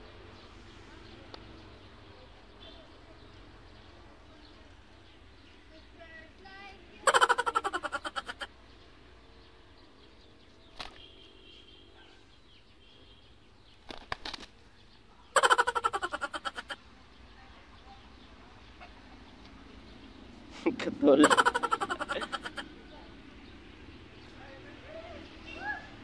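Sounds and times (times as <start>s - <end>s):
chirps: 7.1s - 20.4s
rooster flapping wings: 10.7s - 11.0s, 13.8s - 14.6s.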